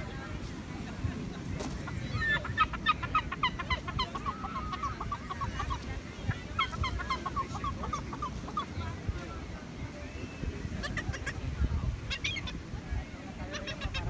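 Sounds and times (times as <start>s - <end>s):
gulls calling: 1.8s - 9.1s.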